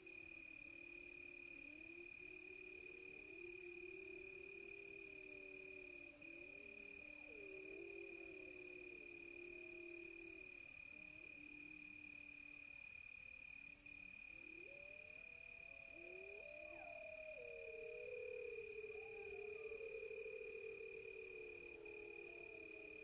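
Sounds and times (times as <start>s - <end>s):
cricket trill: 0.0s - 23.0s
pulsing insect chirping: 0.0s - 23.0s
wolves howling: 15.9s - 23.0s.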